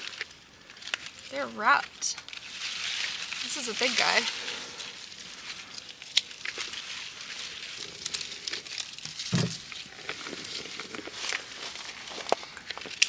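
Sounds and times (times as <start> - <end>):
grapevine leaves rustling and crackling: 0.0 - 13.0.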